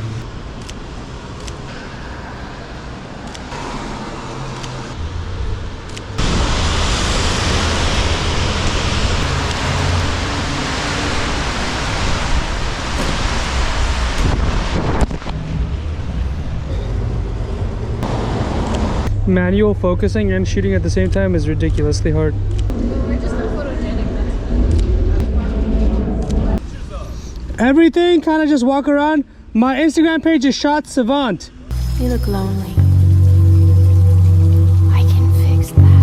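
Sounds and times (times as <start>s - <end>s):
traffic on wet streets: 0.0s - 19.3s
heavy rain: 3.7s - 17.4s, 31.7s - 36.0s.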